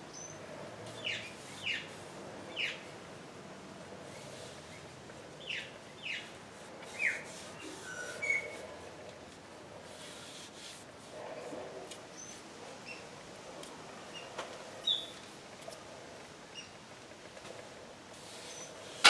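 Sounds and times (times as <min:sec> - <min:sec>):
faint room noise: 0:00.0 - 0:19.0
small birds chirping: 0:01.0 - 0:02.8, 0:05.4 - 0:06.3, 0:14.1 - 0:15.2.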